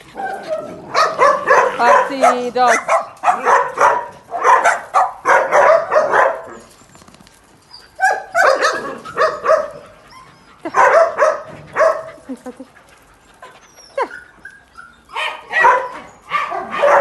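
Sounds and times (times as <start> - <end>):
dogs barking: 0.0 - 6.7, 8.0 - 12.4, 15.1 - 17.0.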